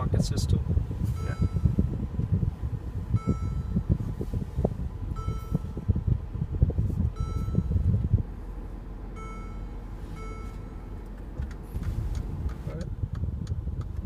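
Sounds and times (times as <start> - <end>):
car driving rumble: 0.0 - 14.0
dashboard electronic chimes: 1.1 - 2.0, 3.2 - 4.0, 5.1 - 6.1, 7.1 - 8.0, 9.1 - 11.0.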